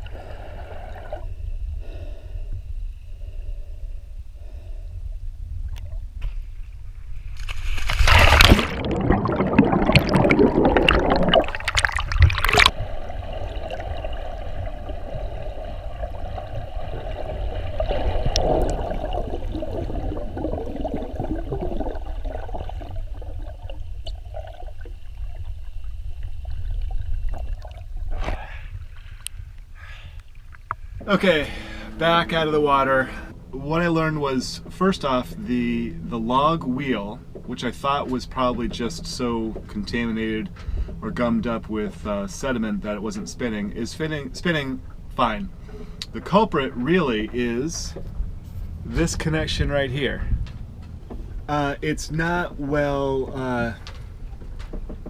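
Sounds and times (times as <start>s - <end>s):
muffled underwater rumble: 0.0s - 55.0s
splashing and bubbling: 7.4s - 29.2s.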